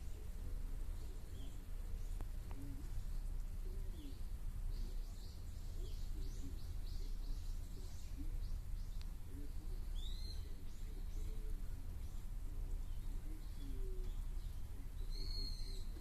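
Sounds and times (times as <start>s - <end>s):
steady low hum: 0.0s - 16.0s
low wavering bird calls: 1.0s - 16.0s
high bird chirps: 12.8s - 16.0s.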